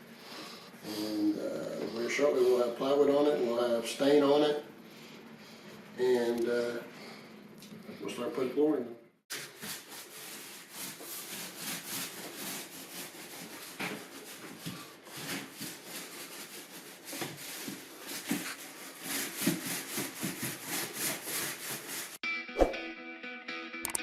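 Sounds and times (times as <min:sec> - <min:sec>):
trowel scraping floor: 0:09.3 - 0:22.2.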